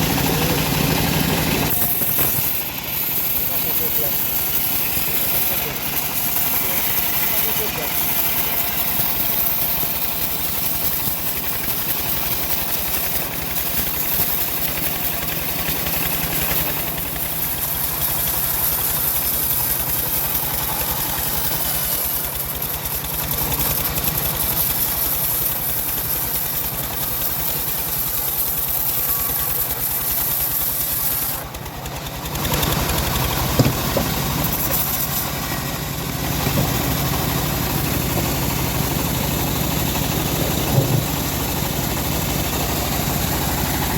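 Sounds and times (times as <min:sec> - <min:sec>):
bandsaw hissing through log: 0:00.0 - 0:43.9
engine drone: 0:00.0 - 0:43.9.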